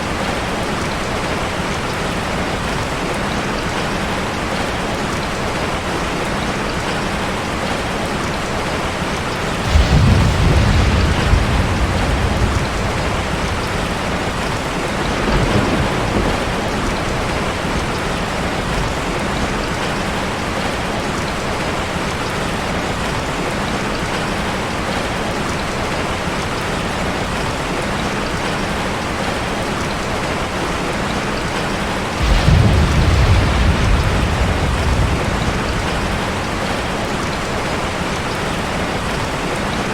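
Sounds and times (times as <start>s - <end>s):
heavy rain on a car: 0.0s - 39.9s
thunder rumbles: 9.3s - 21.0s, 32.0s - 39.4s.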